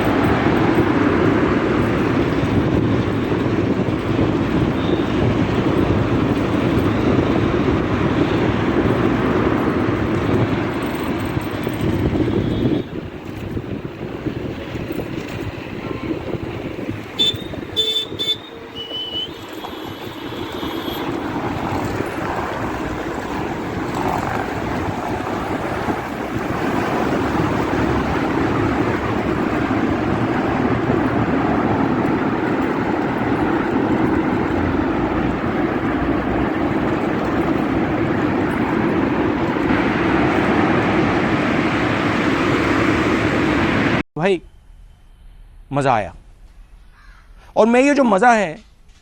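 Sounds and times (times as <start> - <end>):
wind on microphone: 0.0 - 44.0
road traffic noise: 0.0 - 49.0
vehicle horn honking: 12.3 - 13.0, 17.1 - 21.2.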